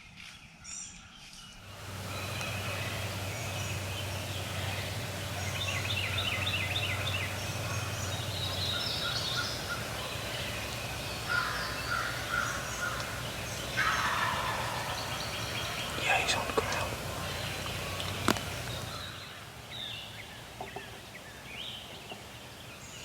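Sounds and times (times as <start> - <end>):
turkey gobbling: 1.8 - 19.2.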